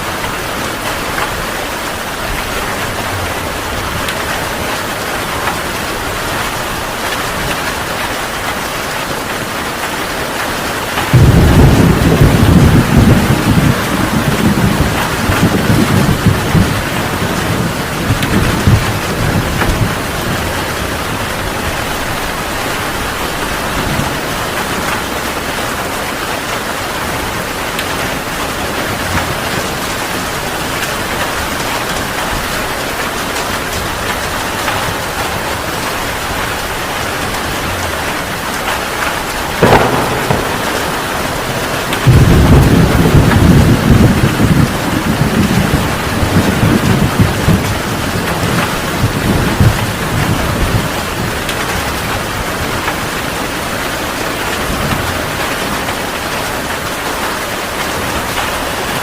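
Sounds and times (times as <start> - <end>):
heavy rain: 0.0 - 59.0
deep rolling thunder: 11.0 - 25.9, 26.9 - 53.2
sharp thunder crack: 11.1 - 20.6, 39.4 - 47.6.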